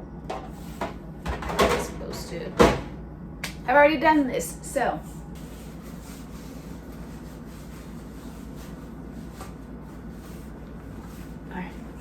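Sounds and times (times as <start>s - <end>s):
low background hum: 0.0s - 12.0s
rubbing of handled objects: 5.1s - 12.0s.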